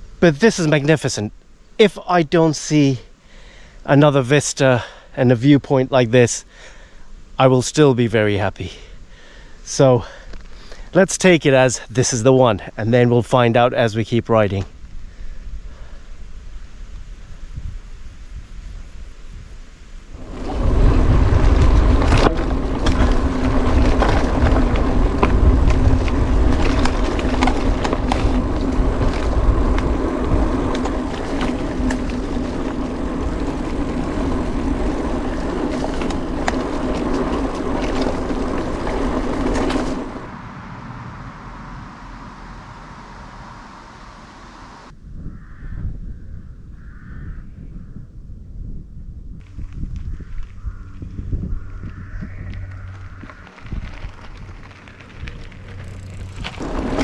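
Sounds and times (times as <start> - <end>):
bike tyres on dirt: 0.0 - 45.6, 48.6 - 57.0
wind buffeting microphone: 14.8 - 57.0.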